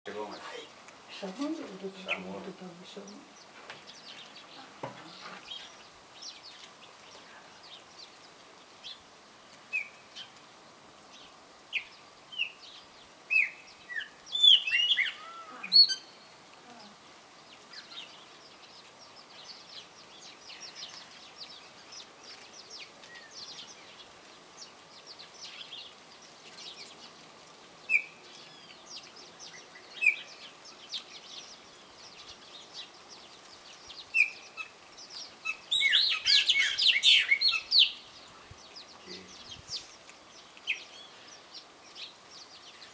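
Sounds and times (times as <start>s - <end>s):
songbirds chirping and calling: 0.1s - 42.9s
sharp bird calls: 11.2s - 27.2s, 27.9s - 42.9s
loud gliding bird calls: 13.3s - 16.3s.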